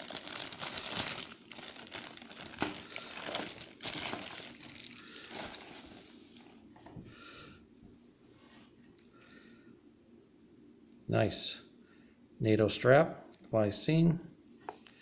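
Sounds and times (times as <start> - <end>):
packaging crinkling and rustling: 0.0 - 6.8.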